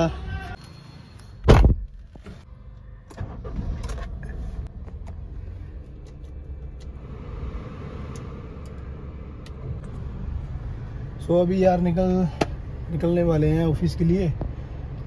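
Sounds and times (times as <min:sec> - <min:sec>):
car engine starting: 0:02.4 - 0:12.8
car engine idling: 0:02.5 - 0:15.0
air-conditioning blower whoosh: 0:06.9 - 0:11.2.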